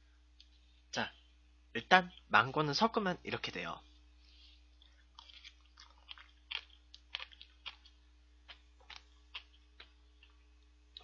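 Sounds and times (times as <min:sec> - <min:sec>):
mouth chewing clicks and smacks: 0:04.8 - 0:11.0.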